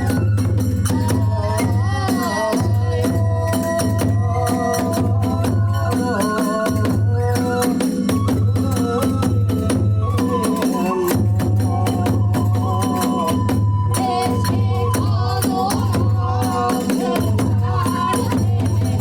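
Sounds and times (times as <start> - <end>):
continuous drumming: 0.0 - 19.0
bending flute melody: 7.3 - 16.7.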